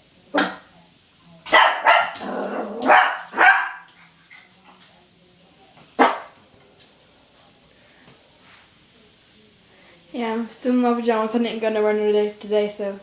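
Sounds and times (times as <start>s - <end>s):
puppy barking: 1.5s - 3.9s, 6.0s - 6.4s.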